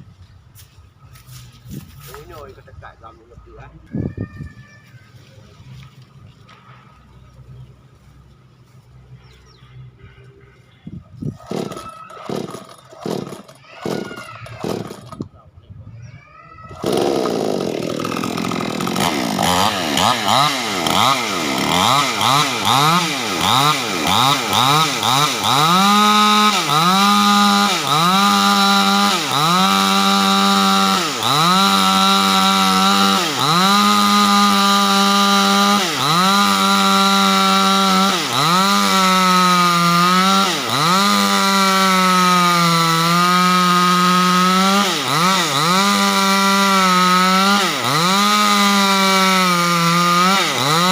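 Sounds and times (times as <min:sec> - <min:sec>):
chainsaw cutting through wood: 0:11.3 - 0:15.3, 0:16.7 - 0:50.9.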